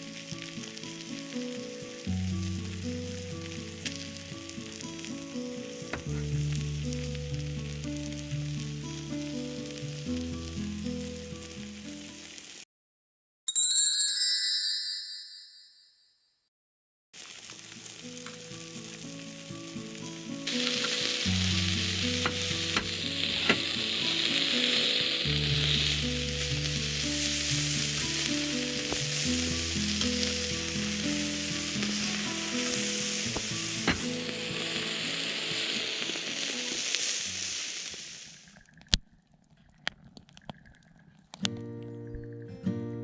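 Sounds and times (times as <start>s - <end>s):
background music: 0.0s - 11.2s, 19.2s - 37.2s
food sizzling: 0.0s - 12.6s, 17.2s - 39.1s.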